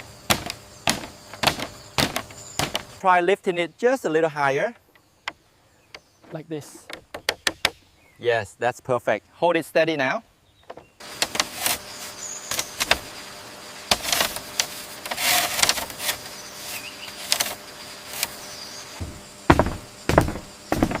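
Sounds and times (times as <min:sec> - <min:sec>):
bamboo poles knocking: 0:00.3 - 0:02.9, 0:05.3 - 0:07.8, 0:19.0 - 0:21.0
scraping rustle: 0:11.1 - 0:13.2, 0:13.9 - 0:21.0
heavy thumps: 0:19.0 - 0:21.0.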